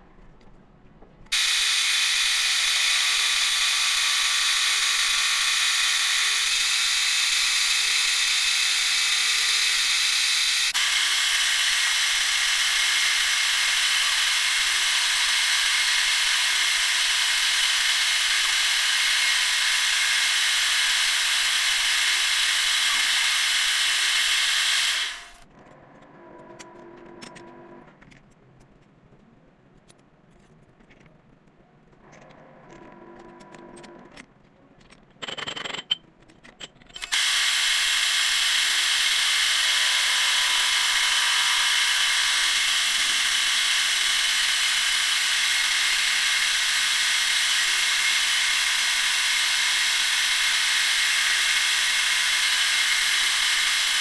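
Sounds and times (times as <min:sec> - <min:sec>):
metal lathe running: 0:01.3 - 0:25.4, 0:37.0 - 0:54.0.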